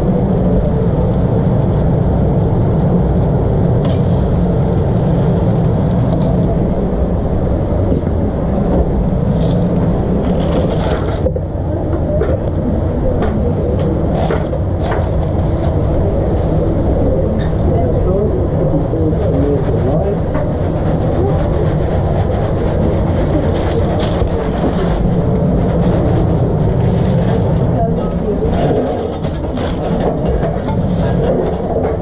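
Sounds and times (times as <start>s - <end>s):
low machine drone: 0.0s - 32.0s
clatters and scrapes: 8.7s - 12.4s, 13.2s - 16.6s, 19.3s - 32.0s.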